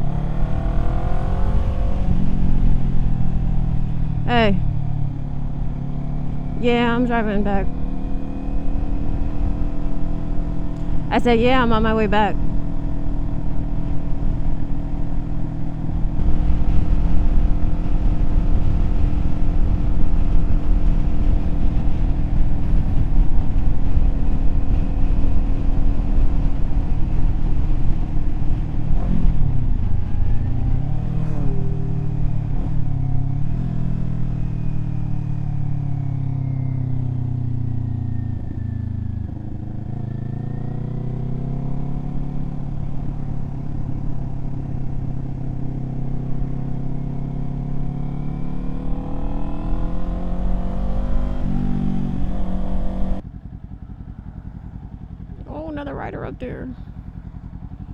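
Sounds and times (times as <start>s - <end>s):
motorcycle engine cruising: 0.0s - 57.9s
wind noise: 12.2s - 33.6s.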